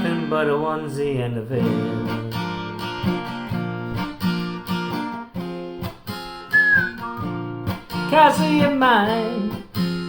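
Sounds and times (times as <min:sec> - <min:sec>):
acoustic guitar picking chords: 0:00.0 - 0:10.0
high whistled note: 0:06.5 - 0:07.4.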